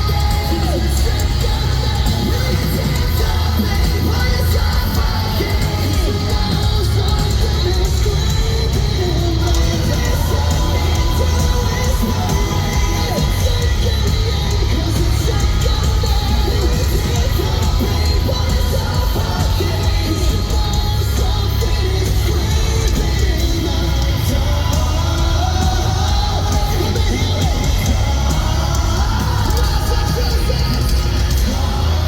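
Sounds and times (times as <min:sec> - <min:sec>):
crowd yelling and cheering: 0:00.0 - 0:32.0
metalcore band playing live: 0:00.0 - 0:32.0
person singing: 0:00.0 - 0:32.0.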